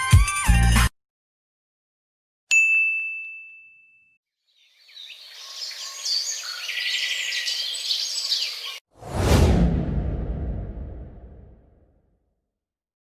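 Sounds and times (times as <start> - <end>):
birds chirping: 4.5 - 8.8.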